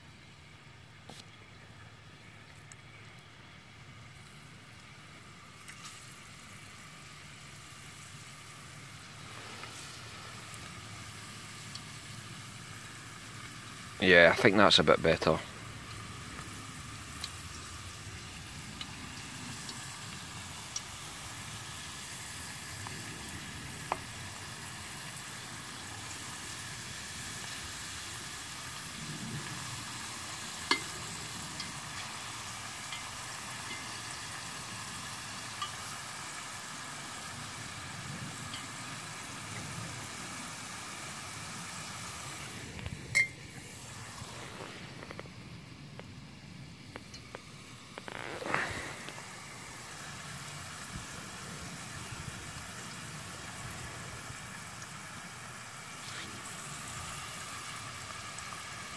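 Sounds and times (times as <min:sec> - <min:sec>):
potato slices sizzling in oil: 0:01.0 - 0:45.8, 0:46.4 - 0:58.9
oil popping: 0:04.1 - 0:14.0, 0:15.6 - 0:28.9, 0:29.5 - 0:36.8, 0:41.8 - 0:52.2
faint crackles: 0:08.8 - 0:13.6, 0:41.9 - 0:51.6.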